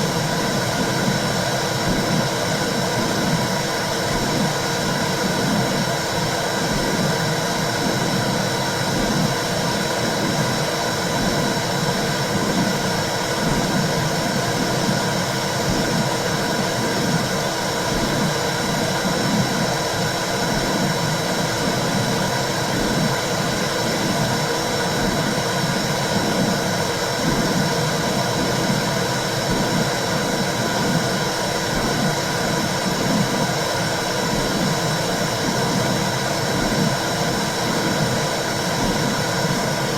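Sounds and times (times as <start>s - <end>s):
low heartbeat pulse: 0.3s - 3.5s, 4.1s - 5.9s, 6.7s - 12.8s, 13.4s - 19.8s, 22.7s - 23.2s, 23.8s - 33.5s, 34.3s - 37.0s.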